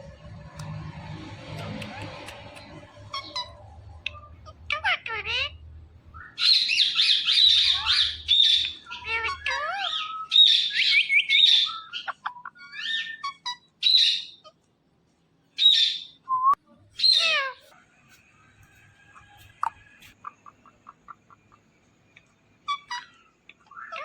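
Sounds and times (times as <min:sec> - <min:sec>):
parrots chirping and squawking: 0:00.3 - 0:14.6, 0:15.6 - 0:16.1, 0:16.9 - 0:17.8, 0:22.6 - 0:24.0.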